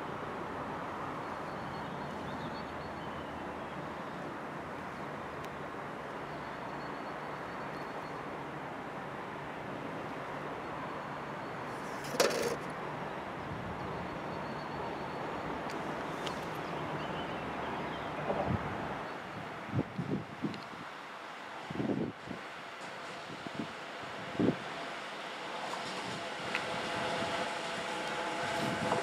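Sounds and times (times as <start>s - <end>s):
freight train rumble and hiss: 18.5s - 29.0s.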